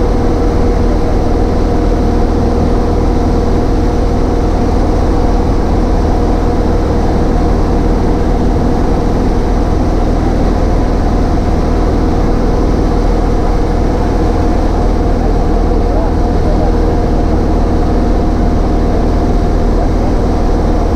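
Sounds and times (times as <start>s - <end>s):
propeller plane engine droning: 0.0s - 20.9s.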